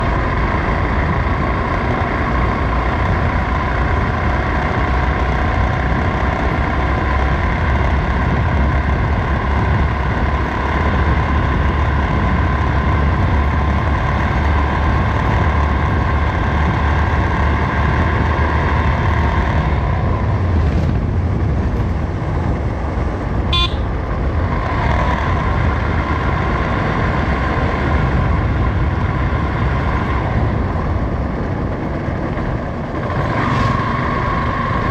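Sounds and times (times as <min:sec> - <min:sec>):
motorcycle engine and road noise: 0:00.0 - 0:34.9
vehicle horn toot: 0:23.5 - 0:23.9.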